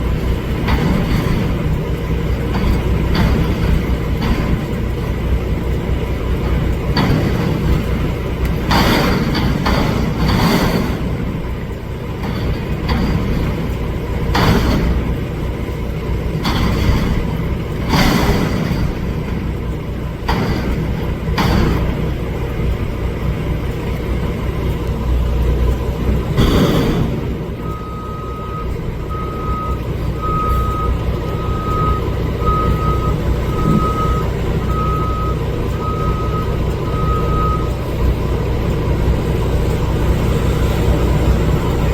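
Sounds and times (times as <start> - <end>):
garbage truck running: 0.0 - 41.9
sudden loud bangs: 26.4 - 28.0
reversing alarm beeping: 26.4 - 38.2.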